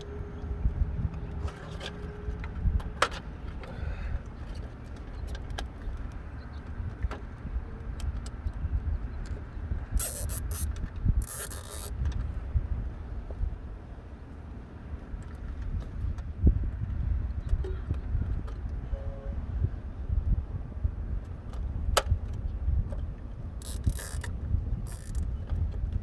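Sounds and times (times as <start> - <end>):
wind rumbling on microphone: 0.3 - 4.6, 15.5 - 26.0
handling clicks: 10.0 - 11.9, 23.6 - 24.3, 24.9 - 25.2
short high rasps: 10.0 - 11.9, 23.6 - 24.3, 24.9 - 25.2.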